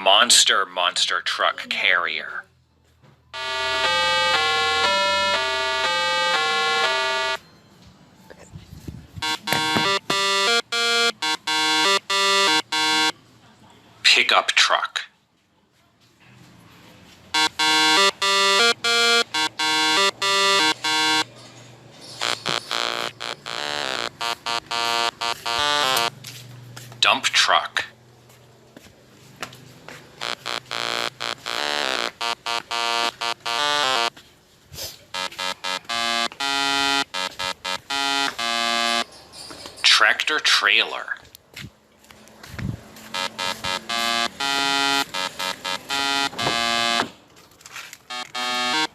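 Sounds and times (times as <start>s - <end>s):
buzzy electronic beeping melody: 3.4s - 7.4s, 9.2s - 13.1s, 17.4s - 21.3s, 22.2s - 26.1s, 30.2s - 34.1s, 35.2s - 39.0s, 43.1s - 47.0s, 48.1s - 48.9s.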